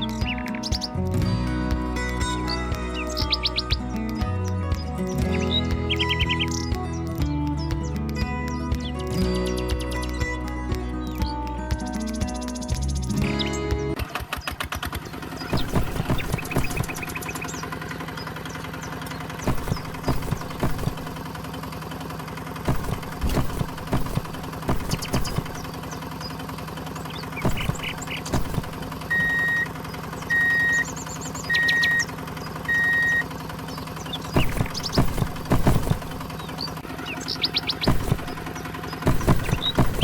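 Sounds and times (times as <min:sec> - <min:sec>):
small motor humming: 0:14.0 - 0:40.0
knocks and clicks: 0:15.5 - 0:17.4, 0:19.4 - 0:21.3, 0:22.7 - 0:25.8, 0:27.4 - 0:29.6, 0:34.2 - 0:36.8, 0:37.8 - 0:40.0
short even beeps: 0:27.4 - 0:29.7, 0:30.3 - 0:30.9, 0:31.5 - 0:32.1, 0:32.7 - 0:33.3.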